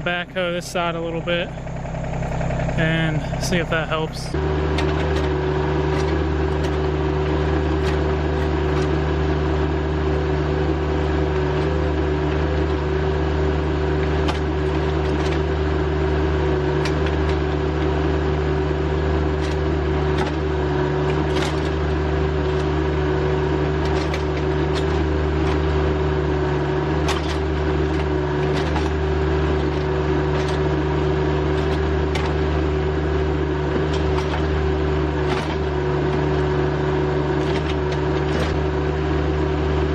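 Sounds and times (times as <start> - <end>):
tractor engine humming: 0.0 - 39.9.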